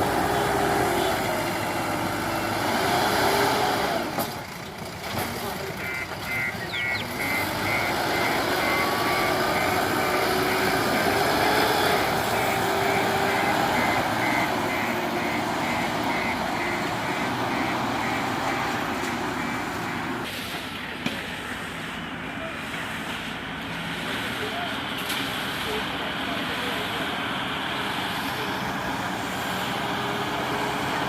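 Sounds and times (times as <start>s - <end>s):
diesel engine working: 0.0s - 31.0s
reversing alarm beeping: 5.8s - 20.3s.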